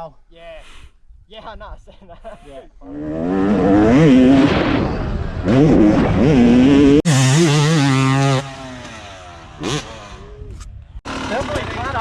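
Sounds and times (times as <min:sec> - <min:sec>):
dirt bike engine revving: 0:02.8 - 0:12.0.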